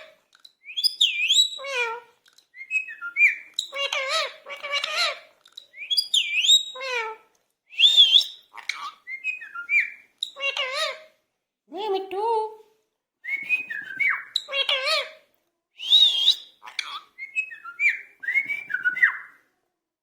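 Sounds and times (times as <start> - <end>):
parakeet talking: 3.7 - 5.2, 8.6 - 11.1, 14.4 - 15.2.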